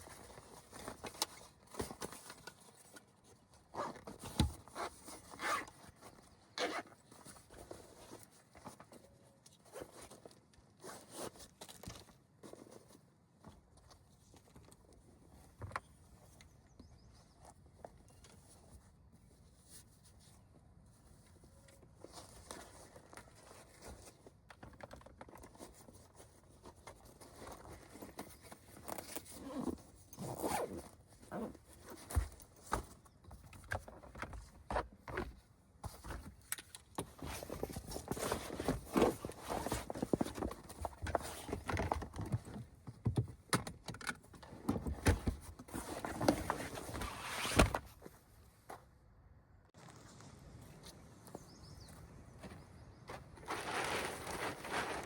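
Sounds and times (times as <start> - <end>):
rustling and handling noises: 0.0 - 49.0, 49.7 - 55.0
zipper being pulled: 4.7 - 5.7, 6.6 - 6.8, 29.1 - 31.6.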